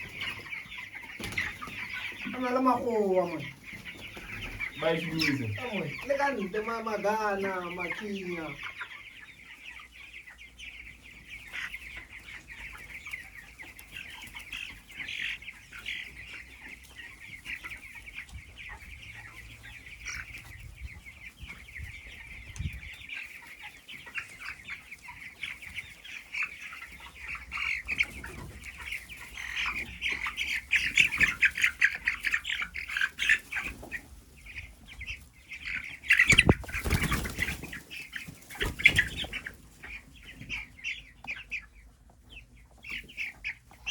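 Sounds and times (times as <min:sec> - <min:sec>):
chickens chattering: 0:00.0 - 0:43.9
wings flapping: 0:36.1 - 0:39.3.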